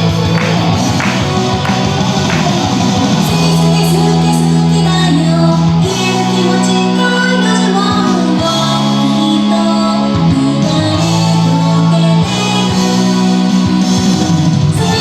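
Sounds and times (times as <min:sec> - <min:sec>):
pop backing track with guitar: 0:00.0 - 0:15.0
woman singing: 0:03.2 - 0:13.5, 0:14.7 - 0:15.0.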